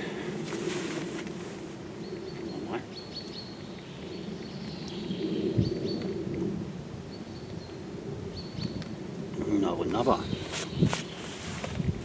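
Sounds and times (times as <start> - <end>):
small birds chirping: 1.9 - 6.2, 7.0 - 11.6.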